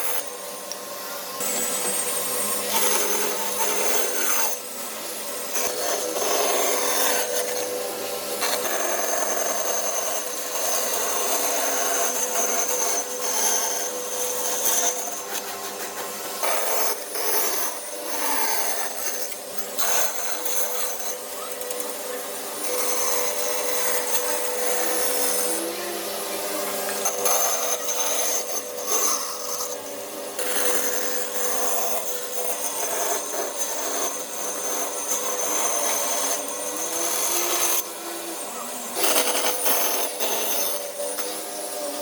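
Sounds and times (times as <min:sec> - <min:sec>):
power tool motor whine: 0:00.0 - 0:42.0
grinding rasping on wood: 0:05.4 - 0:07.7, 0:30.4 - 0:38.0, 0:38.9 - 0:42.0.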